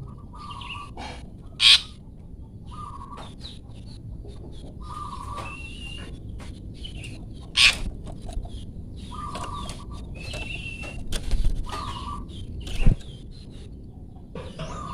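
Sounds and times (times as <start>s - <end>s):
harsh noisy bird call: 1.6s - 1.9s.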